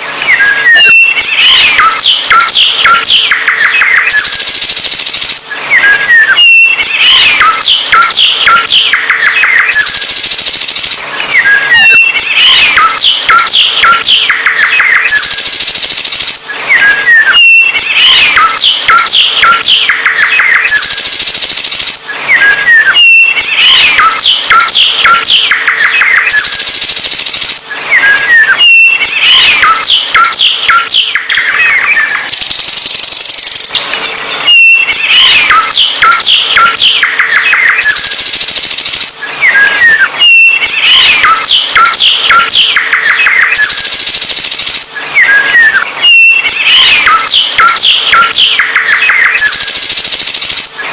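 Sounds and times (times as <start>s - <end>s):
songbird singing: 0.0s - 49.9s.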